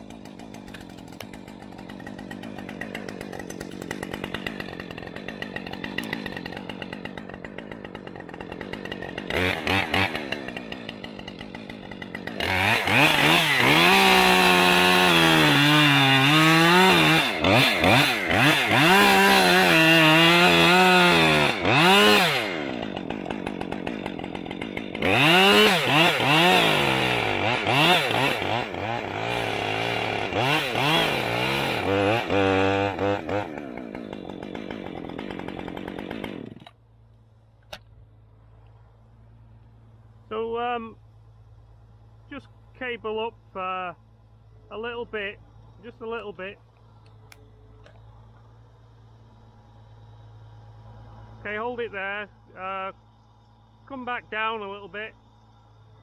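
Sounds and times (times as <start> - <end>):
chainsaw revving and cutting wood: 0.0 - 56.0.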